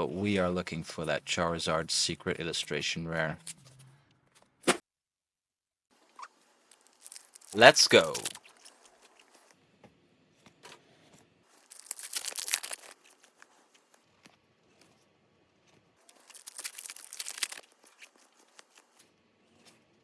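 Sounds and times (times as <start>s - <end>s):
foil wrappers tearing and crinkling: 6.7s - 9.4s, 11.6s - 13.8s, 16.1s - 19.0s.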